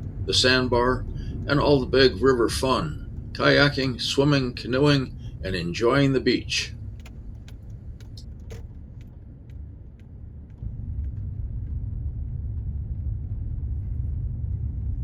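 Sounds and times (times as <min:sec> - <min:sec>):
car road rumble: 0:00.0 - 0:15.0
light clicks or rattles: 0:06.5 - 0:10.1.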